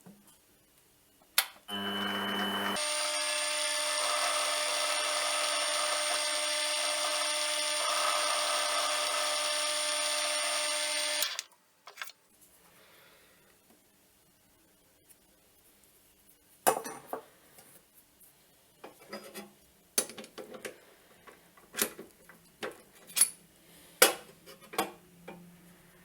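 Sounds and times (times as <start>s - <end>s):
machine tool motor whining: 1.7s - 11.5s.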